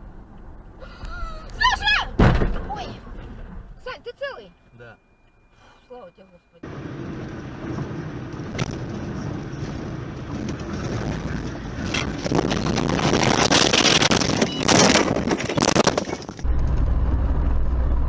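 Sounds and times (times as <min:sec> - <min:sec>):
deep vehicle drone: 0:00.0 - 0:01.8, 0:04.5 - 0:18.0
vehicle engine rumble: 0:00.0 - 0:18.0
rough rushing noise with crackles: 0:06.6 - 0:18.0.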